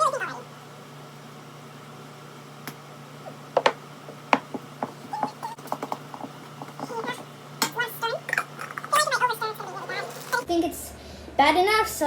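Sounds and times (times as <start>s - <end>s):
spoon tapping a container: 3.6s - 4.6s.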